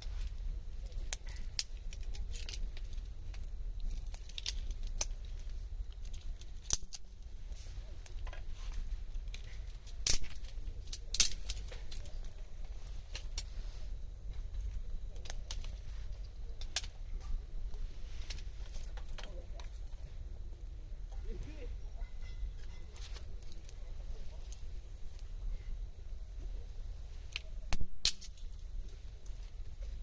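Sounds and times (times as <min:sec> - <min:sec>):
campfire crackling: 0:00.0 - 0:30.0
fire pops: 0:00.0 - 0:30.0.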